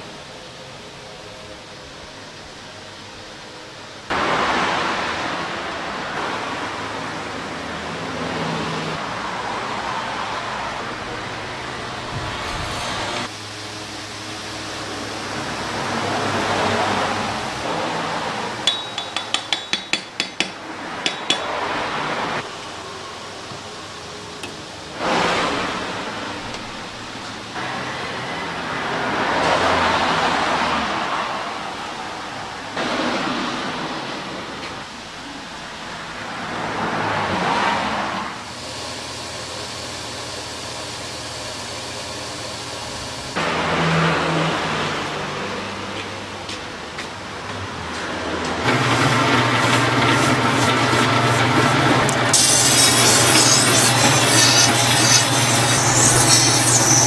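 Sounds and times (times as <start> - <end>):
machine humming: 48.6 - 57.0.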